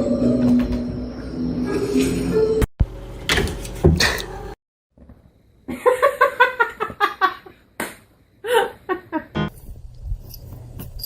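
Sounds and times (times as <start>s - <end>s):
person laughing: 8.4s - 9.4s.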